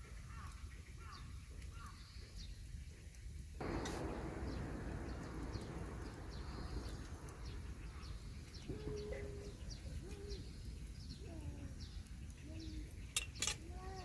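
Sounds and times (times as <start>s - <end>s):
background hiss: 0.0s - 14.0s
high bird chirps: 3.6s - 13.5s
lower arched bird calls: 3.6s - 14.0s.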